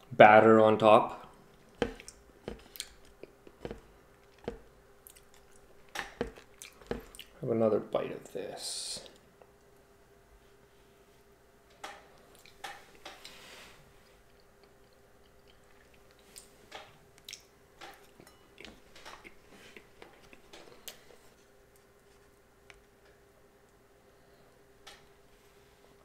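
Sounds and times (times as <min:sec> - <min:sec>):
soft squishy chewing: 0:01.5 - 0:07.4.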